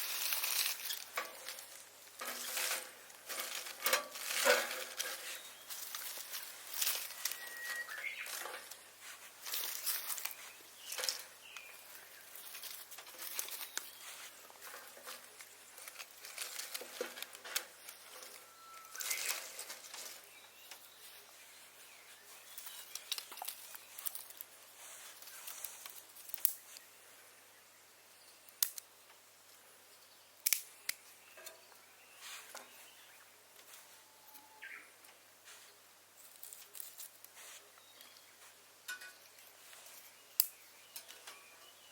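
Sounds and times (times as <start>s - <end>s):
objects tapping and rustling: 0.0s - 20.9s.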